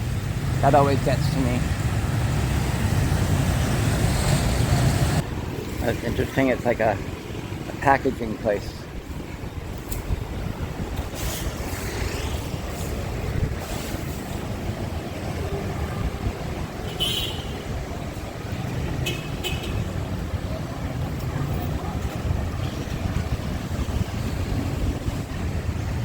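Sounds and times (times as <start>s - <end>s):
city street traffic rumble: 0.0s - 26.0s
wind on microphone: 8.9s - 16.9s, 21.8s - 26.0s.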